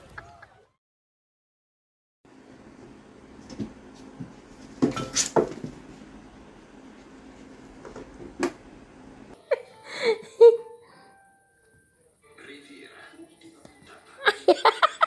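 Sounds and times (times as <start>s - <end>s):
steady low hum: 2.3s - 9.4s.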